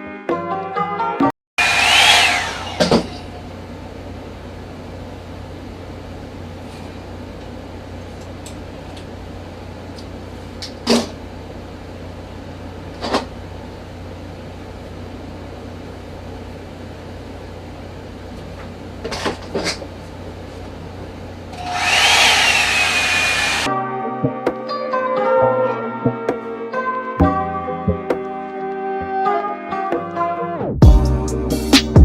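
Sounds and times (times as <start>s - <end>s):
hot-air brush dryer blowing: 1.6s - 3.4s, 21.6s - 23.7s.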